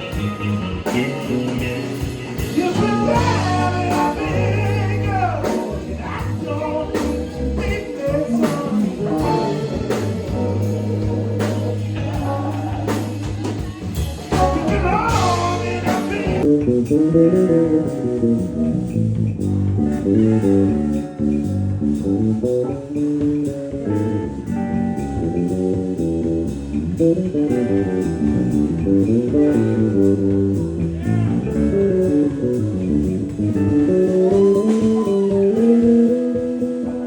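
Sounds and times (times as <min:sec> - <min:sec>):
person singing: 0:00.0 - 0:16.5, 0:33.8 - 0:37.0
bass guitar: 0:00.0 - 0:37.0
drum kit: 0:00.0 - 0:37.0
electric guitar: 0:00.0 - 0:37.0.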